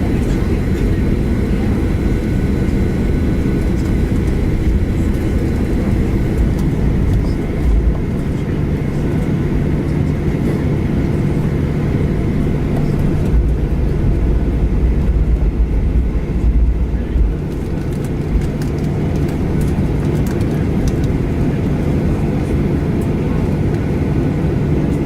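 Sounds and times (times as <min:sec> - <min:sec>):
jet engine rumble in cabin: 0:00.0 - 0:25.0
deep hum: 0:11.9 - 0:19.8.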